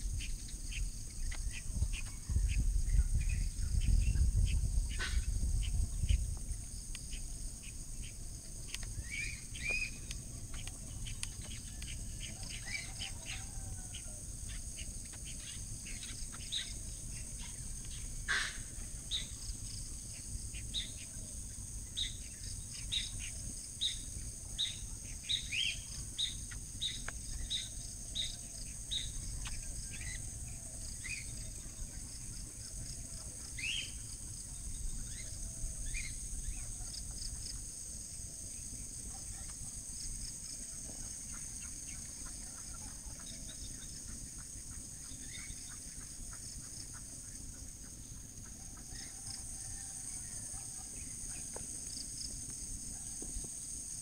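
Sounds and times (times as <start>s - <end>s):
birds chirping: 7.0s - 37.6s.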